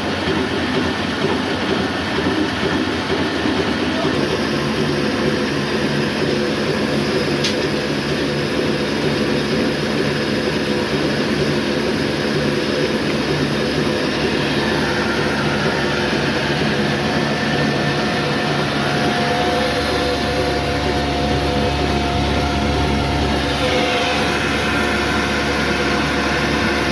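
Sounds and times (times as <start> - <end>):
diesel engine running under load: 0.0 - 26.9
flour mill grinding: 11.0 - 26.9.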